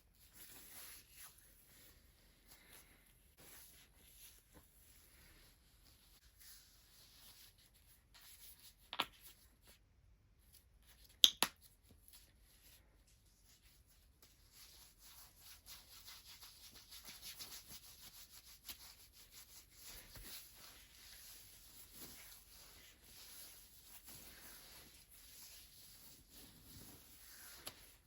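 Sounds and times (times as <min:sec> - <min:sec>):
hands rubbing bare feet: 0:15.8 - 0:28.0.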